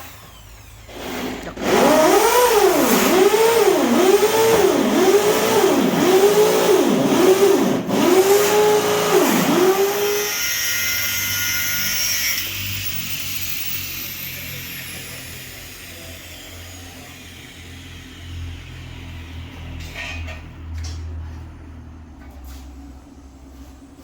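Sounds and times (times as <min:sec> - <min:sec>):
power tool motor whining: 0:00.0 - 0:18.0.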